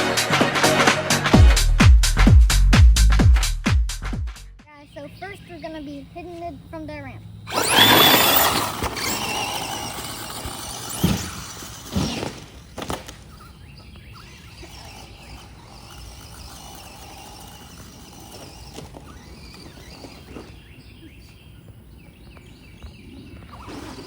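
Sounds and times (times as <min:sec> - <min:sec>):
faint outdoor noise: 0:04.6 - 0:24.0
toy car motor whine: 0:07.4 - 0:21.4, 0:23.4 - 0:24.0
knocks and clatters of landing: 0:10.3 - 0:13.2.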